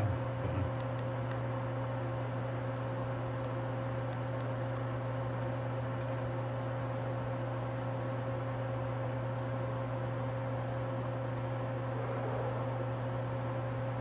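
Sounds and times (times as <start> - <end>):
machine hum: 0.0 - 1.4.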